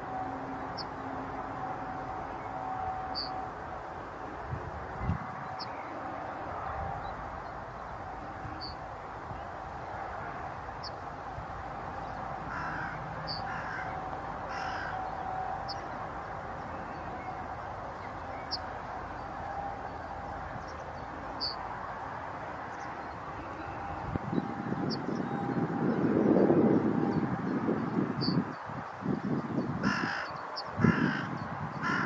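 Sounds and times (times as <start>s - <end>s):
crow cawing: 12.5s - 15.0s, 29.8s - 32.0s.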